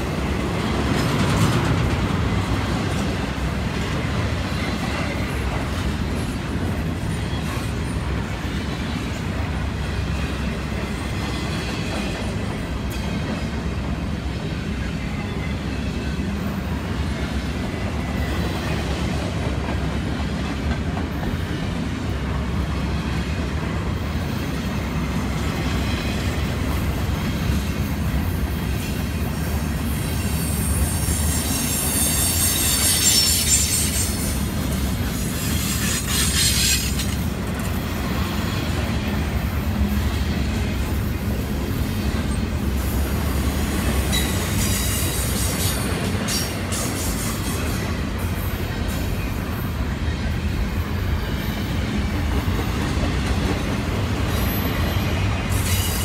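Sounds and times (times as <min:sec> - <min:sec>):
freight train rolling past: 0:00.0 - 0:56.0
high wheel squeal: 0:29.9 - 0:37.2, 0:54.3 - 0:56.0.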